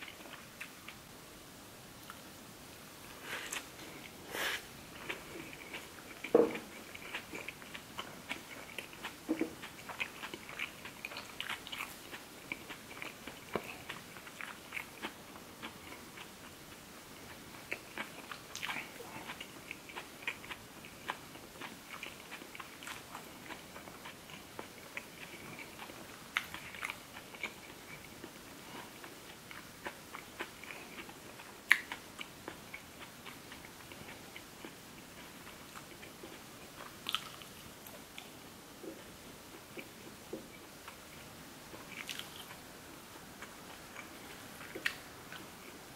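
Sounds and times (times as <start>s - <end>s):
chewing with crisp crackles: 0.0s - 1.2s, 3.1s - 45.9s.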